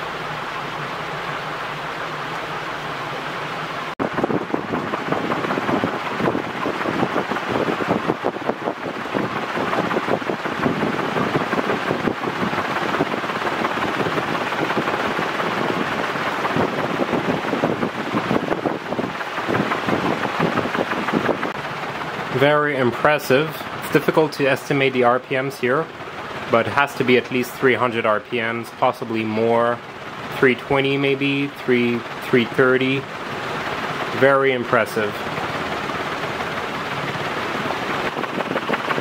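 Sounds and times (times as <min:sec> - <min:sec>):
ceiling fan air rush: 0:00.0 - 0:39.0
wind buffeting microphone: 0:04.0 - 0:24.3, 0:35.0 - 0:39.0.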